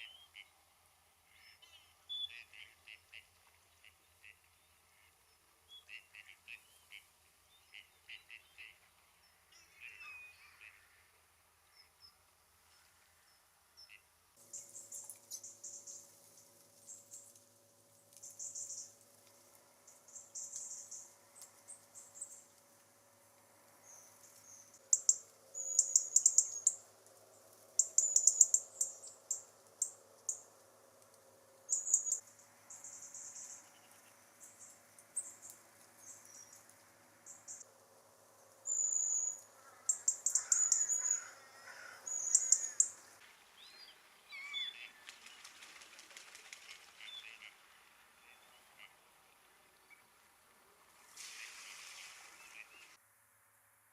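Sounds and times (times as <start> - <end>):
faint steady hum: 0.0 - 53.9
birds calling: 38.7 - 43.1.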